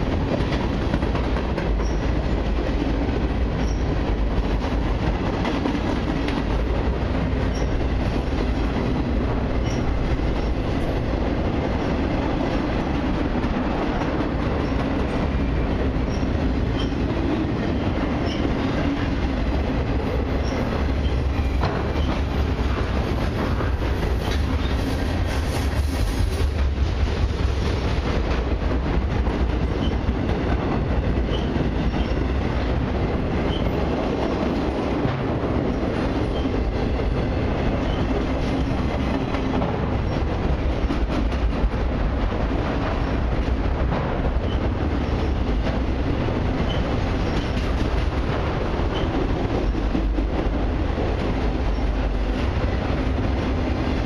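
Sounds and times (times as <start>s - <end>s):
freight train rolling past: 0.0s - 54.0s
steel wheels clattering on rails: 0.0s - 54.0s.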